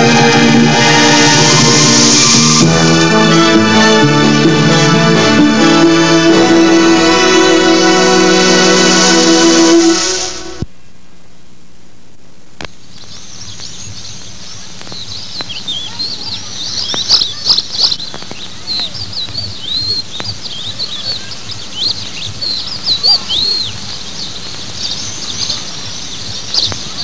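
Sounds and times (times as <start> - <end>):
videotape hum and hiss: 0.0 - 27.0
small birds chirping: 12.8 - 27.0.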